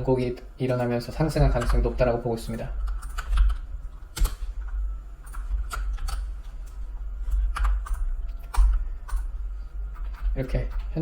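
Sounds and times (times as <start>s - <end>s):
low hum: 0.0s - 11.0s
keyboard typing clicks: 2.8s - 4.4s.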